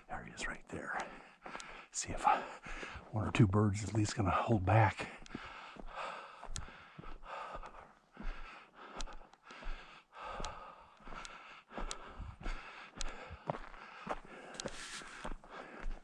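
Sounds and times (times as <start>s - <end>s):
footsteps crunching in snow: 13.2s - 16.0s.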